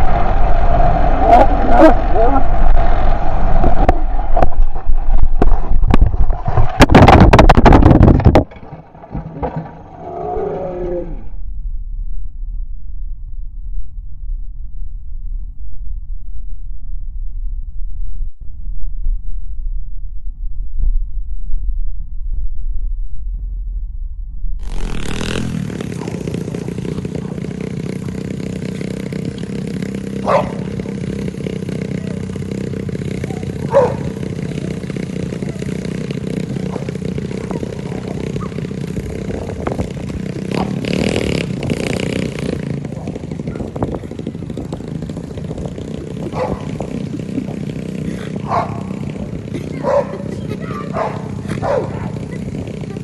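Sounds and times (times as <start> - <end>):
motorcycle engine running: 0.0 - 11.5, 24.6 - 53.0
dog barking: 30.2 - 30.7, 33.7 - 34.2, 36.7 - 38.6, 46.3 - 46.7, 48.4 - 48.9, 49.8 - 50.3, 50.9 - 52.2.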